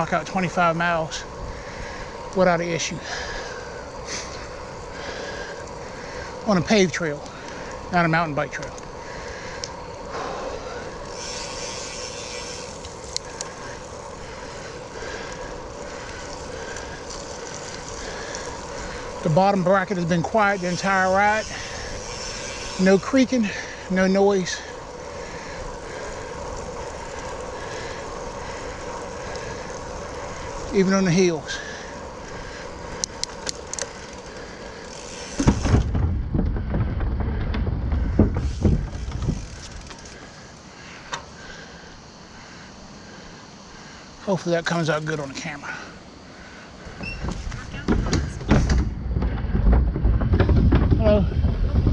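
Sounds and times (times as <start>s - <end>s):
bicycle tyre hiss: 0.0s - 51.9s
steady hum: 0.0s - 51.9s
wind across microphone: 34.8s - 40.1s, 47.0s - 51.9s.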